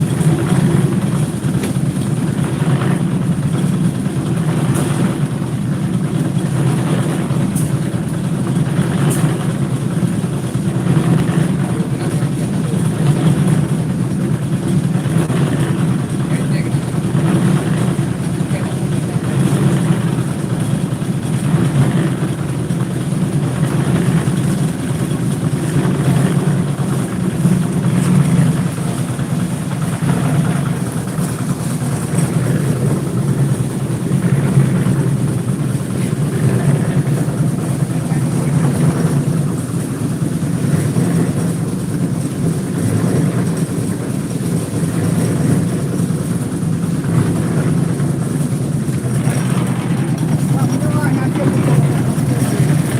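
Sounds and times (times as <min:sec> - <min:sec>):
large engine droning: 0:00.0 - 0:52.9.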